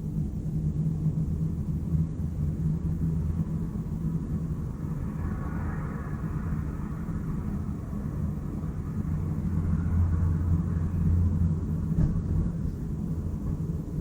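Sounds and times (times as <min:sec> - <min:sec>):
low rumble of city traffic: 0:00.0 - 0:14.0
passing vehicle hiss: 0:03.2 - 0:14.0.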